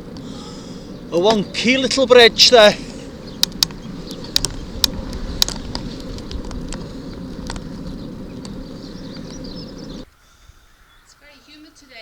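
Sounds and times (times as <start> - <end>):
bicycle tyres rumbling: 0.0 - 11.0
wind: 0.0 - 12.0
sharp clicks and ticks: 3.3 - 7.7.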